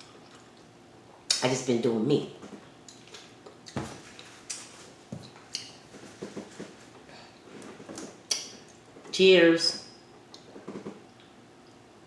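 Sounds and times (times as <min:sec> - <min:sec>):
person chewing food: 0:02.8 - 0:06.3
mouth clicks and wet smacks: 0:04.4 - 0:05.8, 0:08.0 - 0:08.8.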